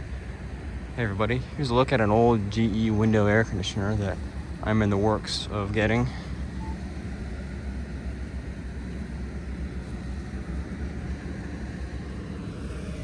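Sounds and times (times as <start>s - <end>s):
air conditioner compressor hum: 0.0s - 13.0s
fan air rushing: 0.0s - 13.0s.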